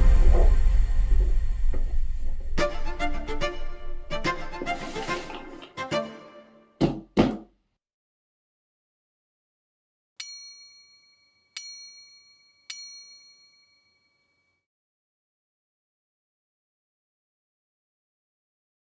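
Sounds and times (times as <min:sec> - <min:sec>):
background music: 0:02.6 - 0:07.3
bell-like dings: 0:10.2 - 0:14.6.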